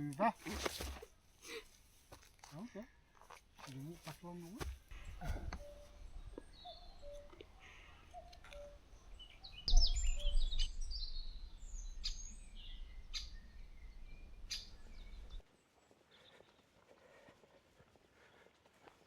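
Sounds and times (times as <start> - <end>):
quiet outdoor ambience: 0.0 - 19.0
wild birds singing: 4.8 - 16.8
wind buffeting microphone: 9.0 - 15.4.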